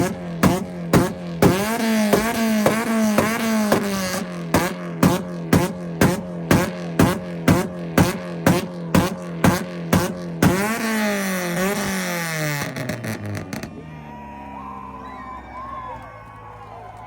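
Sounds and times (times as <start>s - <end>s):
engine free revving and crackling: 0.0s - 13.9s
loud exhaust bangs: 0.0s - 14.9s
car engine on launch limiter: 0.0s - 16.4s.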